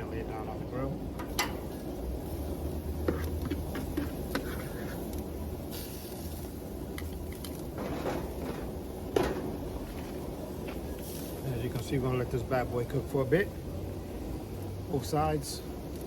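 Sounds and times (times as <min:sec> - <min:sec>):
steady low rumble: 0:00.0 - 0:16.0
steak handled onto grill clicks: 0:06.9 - 0:07.7.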